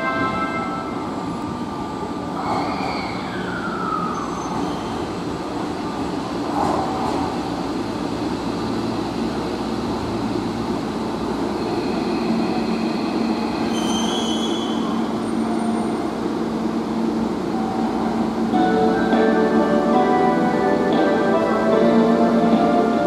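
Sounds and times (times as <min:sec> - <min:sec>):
train wheels rumbling on rail: 0:00.0 - 0:23.0
brake squeal: 0:12.9 - 0:15.9.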